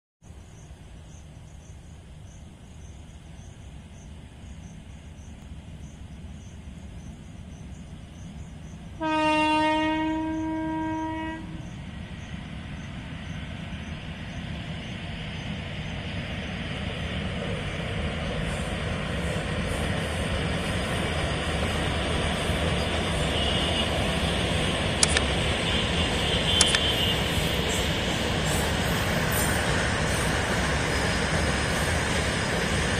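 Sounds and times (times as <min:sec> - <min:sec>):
train rumbling past: 0:00.3 - 0:32.9
train horn blast: 0:09.0 - 0:11.7, 0:23.2 - 0:24.1, 0:25.6 - 0:27.3
sharp clicks: 0:25.0 - 0:25.4, 0:26.5 - 0:27.0.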